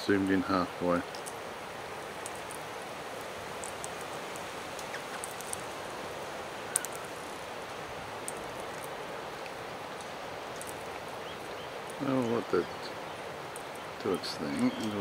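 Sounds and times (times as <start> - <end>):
rustling leaves: 0.0 - 15.0
wind: 0.0 - 15.0.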